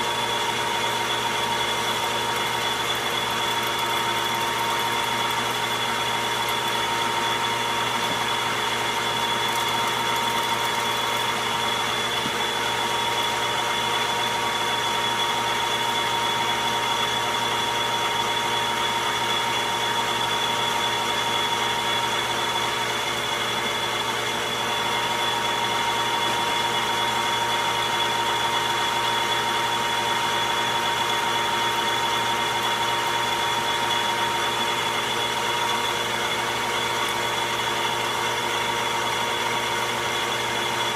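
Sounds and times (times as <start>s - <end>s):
metal lathe whirring: 0.0s - 40.9s.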